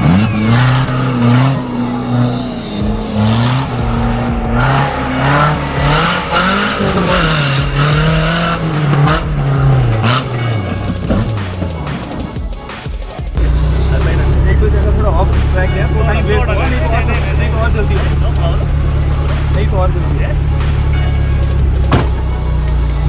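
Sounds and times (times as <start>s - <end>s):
falling whine: 0.0s - 12.3s
engine revving under load: 0.0s - 12.4s, 13.4s - 23.0s.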